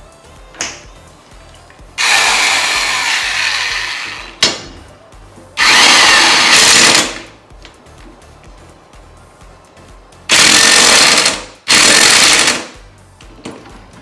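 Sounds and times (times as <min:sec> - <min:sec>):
impact wrench hammering: 0:02.0 - 0:04.8, 0:05.6 - 0:07.3, 0:10.3 - 0:12.8.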